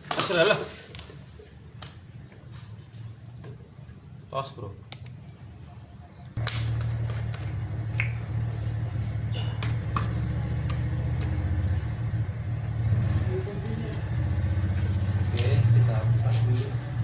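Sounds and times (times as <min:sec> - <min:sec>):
diesel engine starting and idling: 0:06.4 - 0:17.0.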